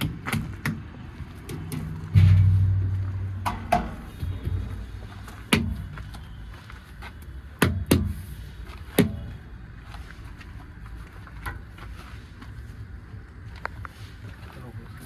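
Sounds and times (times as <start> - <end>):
vehicle engine rumbling: 1.0 - 11.8
sharp knocks: 1.6 - 6.1.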